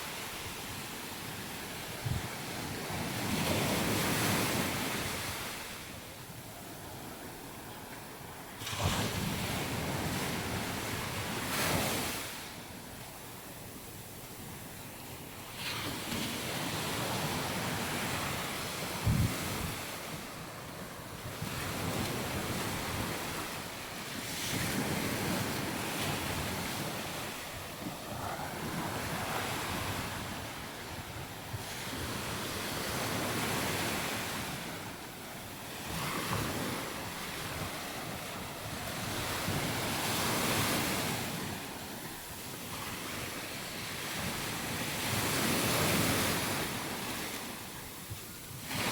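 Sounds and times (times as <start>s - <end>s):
wind on microphone: 0.0s - 5.9s, 15.6s - 35.0s.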